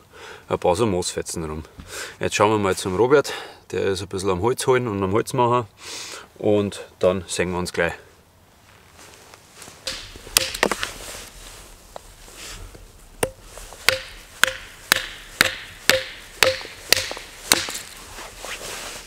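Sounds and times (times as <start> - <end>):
firewood being split: 9.8 - 18.1.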